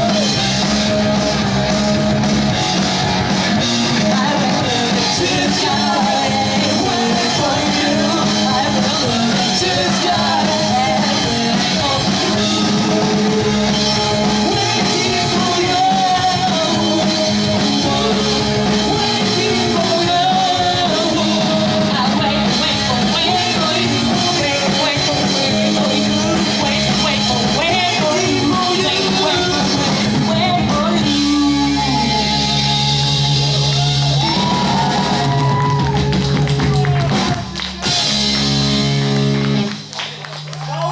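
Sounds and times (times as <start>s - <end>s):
pop-punk band playing live: 0.0s - 40.9s
person singing: 3.8s - 34.5s.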